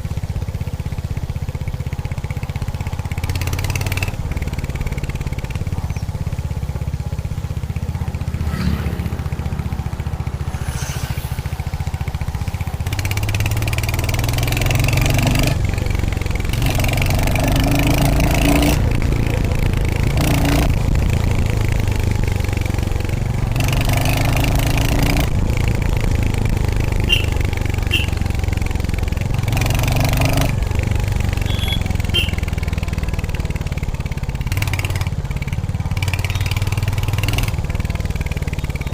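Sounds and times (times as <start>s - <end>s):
motorcycle engine running: 0.0s - 38.9s
brief rushes of noise: 10.2s - 12.6s.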